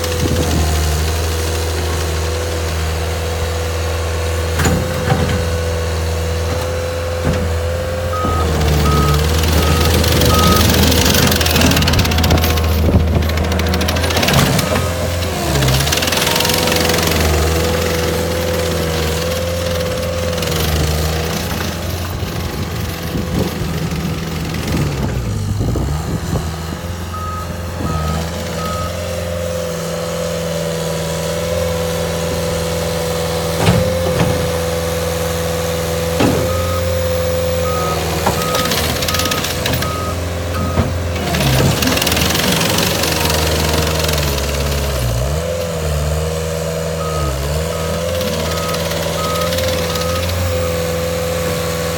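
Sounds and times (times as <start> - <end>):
skid steer diesel engine whine: 0.0 - 51.9
backup alarm beeping: 8.1 - 12.5.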